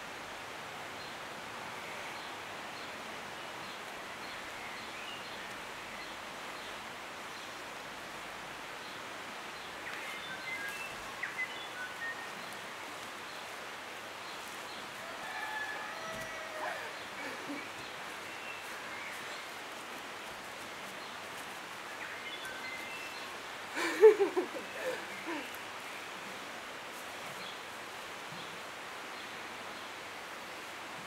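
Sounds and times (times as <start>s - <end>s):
steady background hiss: 0.0s - 31.0s
birds chirping: 14.2s - 26.4s.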